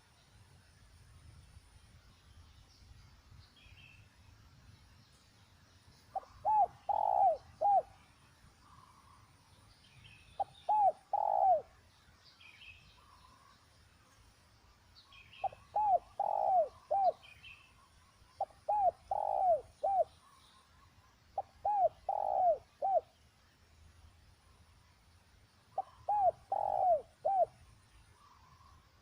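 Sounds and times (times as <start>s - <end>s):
faint small bird chirps: 0.0s - 29.0s
dove cooing: 6.2s - 7.9s, 10.4s - 11.7s, 15.4s - 17.2s, 18.4s - 20.1s, 21.4s - 23.1s, 25.8s - 27.6s.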